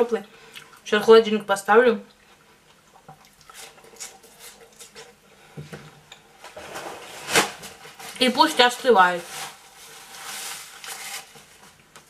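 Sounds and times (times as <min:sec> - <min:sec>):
wet chewing: 0:02.1 - 0:05.2.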